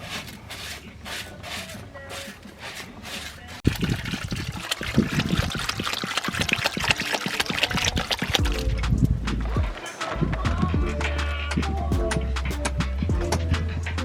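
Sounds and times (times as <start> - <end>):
water pouring and splashing: 2.6 - 10.2.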